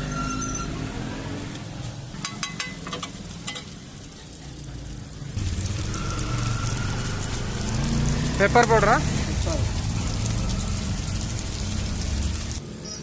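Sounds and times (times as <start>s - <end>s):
food sizzling on griddle: 0.0s - 13.0s
spatula clicking on pan: 2.2s - 3.7s
low rumble: 5.4s - 12.6s.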